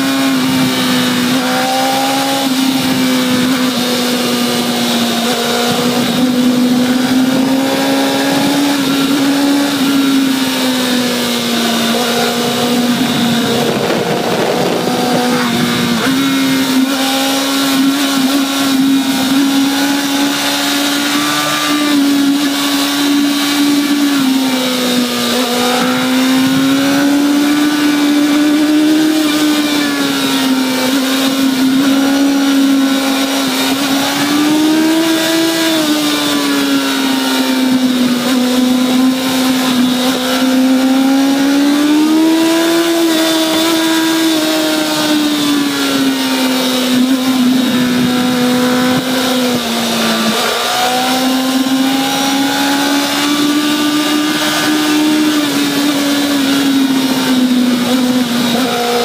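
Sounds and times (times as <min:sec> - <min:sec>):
motorcycle engine at high revs: 0:00.0 - 0:59.0
wind rush: 0:10.5 - 0:21.9.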